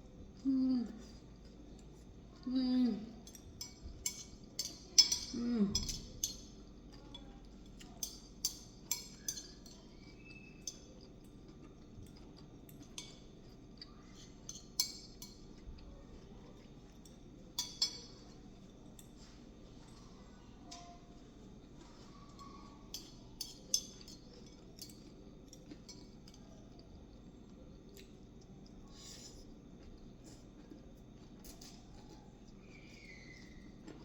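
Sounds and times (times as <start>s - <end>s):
utensils clinking on dishes: 3.2s - 6.6s, 7.7s - 11.2s, 17.0s - 18.2s.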